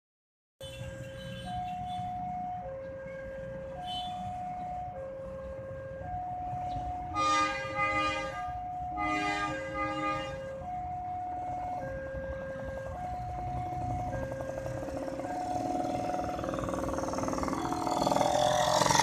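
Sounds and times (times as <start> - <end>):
train horn blasts: 7.1 - 10.4.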